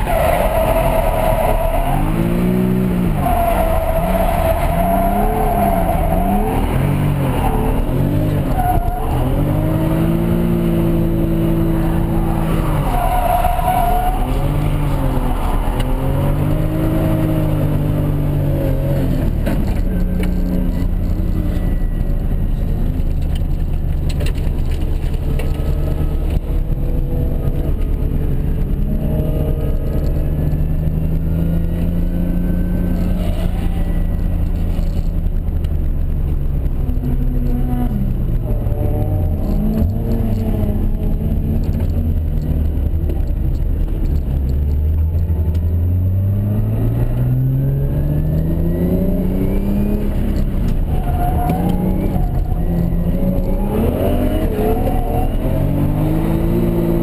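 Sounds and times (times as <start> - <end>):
tyre squeal: 0.0 - 9.9, 11.7 - 17.4, 18.8 - 22.7, 32.5 - 34.9, 49.4 - 56.9
car engine revving: 0.0 - 57.0.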